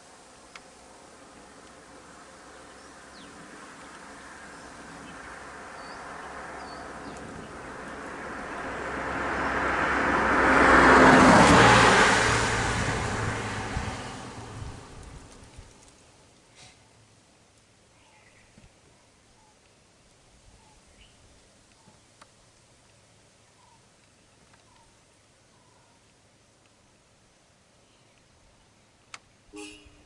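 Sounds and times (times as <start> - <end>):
motor vehicle driving past: 2.4 - 15.8.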